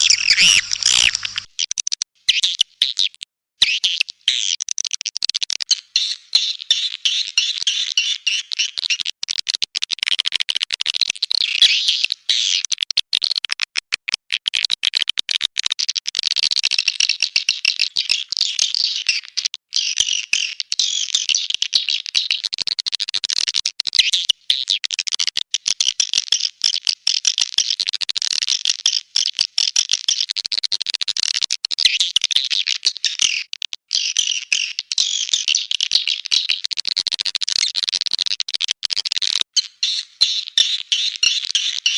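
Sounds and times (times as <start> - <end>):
swiftlet chirps and twitters: 0.0 - 1.7.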